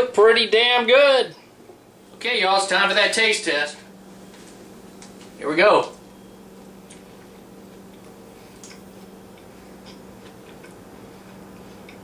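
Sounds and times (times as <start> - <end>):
steady low hum: 0.0 - 12.0
chewing mouth clicks: 7.8 - 12.0.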